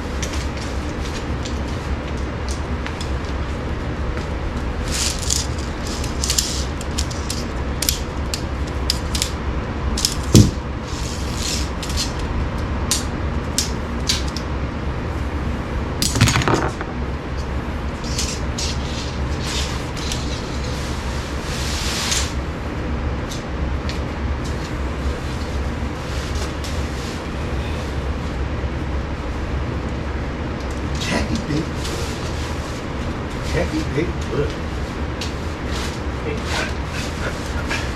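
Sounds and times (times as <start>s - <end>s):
steady low hum: 0.0s - 21.7s
sharp knock: 10.4s - 10.6s, 16.1s - 17.0s.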